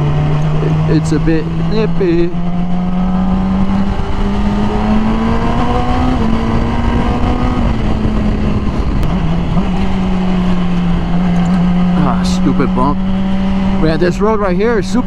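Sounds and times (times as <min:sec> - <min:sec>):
motorcycle engine cruising: 0:00.0 - 0:15.0
wind rush: 0:02.3 - 0:13.8.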